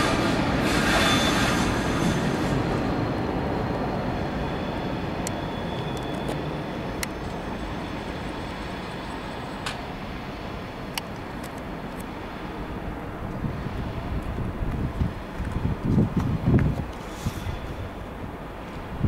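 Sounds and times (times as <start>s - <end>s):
high wheel squeal: 0.0s - 9.6s, 17.0s - 18.0s
train rumble: 0.0s - 19.0s.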